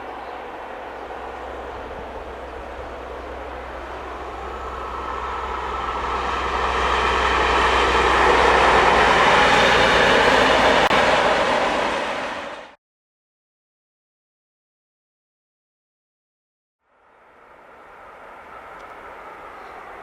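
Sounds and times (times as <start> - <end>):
train passing: 0.0 - 12.8, 16.9 - 20.0.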